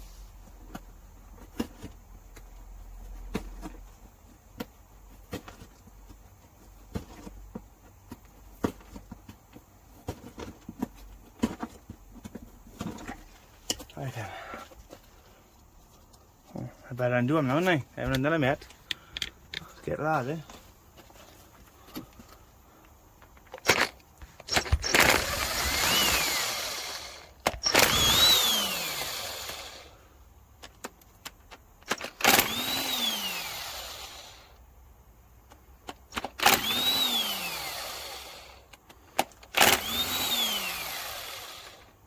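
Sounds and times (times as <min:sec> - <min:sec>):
tool clicking on bolts: 0:23.6 - 0:29.6
power tool whining: 0:23.6 - 0:30.0, 0:31.8 - 0:34.6, 0:36.1 - 0:38.6, 0:39.5 - 0:41.9.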